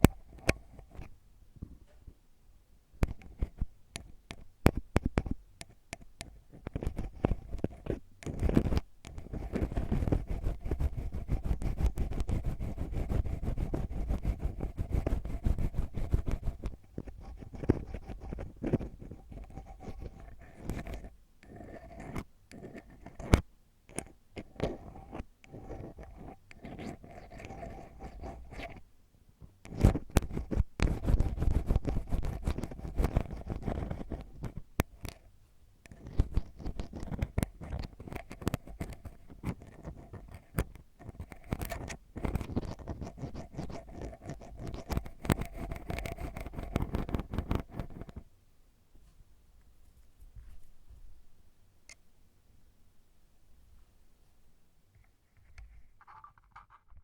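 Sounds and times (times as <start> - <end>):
ear pick scratching microphone: 6.5 - 23.4, 24.4 - 28.8, 29.7 - 35.1, 36.0 - 48.2.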